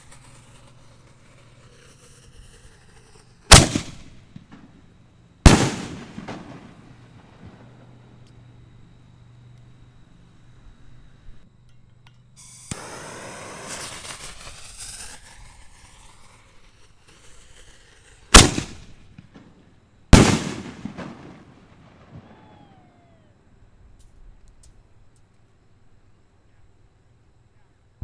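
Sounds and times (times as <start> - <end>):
firework shell launch crack: 0.0 - 4.9, 5.5 - 8.4, 12.0 - 23.2
firework booms echoing: 3.5 - 4.8, 5.5 - 8.2, 12.7 - 16.3, 18.3 - 19.6, 20.2 - 23.2
rushing hiss of rising shell: 12.4 - 19.0.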